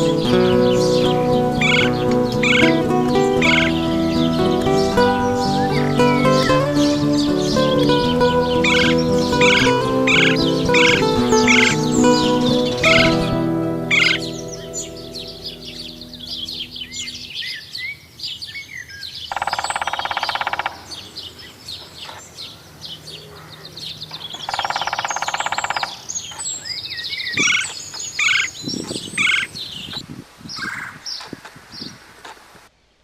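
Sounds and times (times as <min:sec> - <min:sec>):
woodpecker drumming: 0:00.0 - 0:17.3, 0:19.3 - 0:21.0, 0:24.4 - 0:26.1
songbirds chirping: 0:00.0 - 0:33.0.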